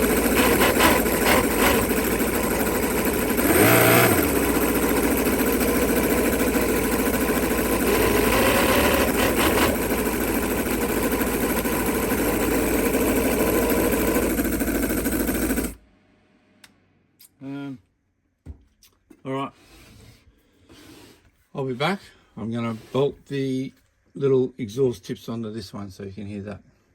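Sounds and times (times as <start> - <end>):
model engine running: 0.0 - 15.8.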